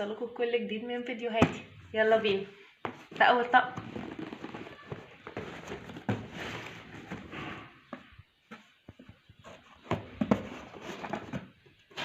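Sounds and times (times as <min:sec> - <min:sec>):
packaging rustling: 0:03.8 - 0:07.3.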